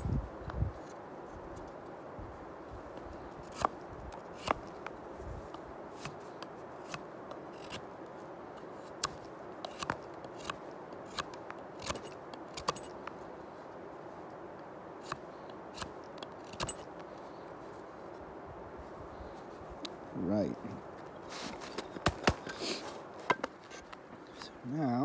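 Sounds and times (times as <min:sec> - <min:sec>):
knife carving wooden stick: 0:03.4 - 0:05.0, 0:06.0 - 0:07.9, 0:08.6 - 0:13.1, 0:15.0 - 0:17.0.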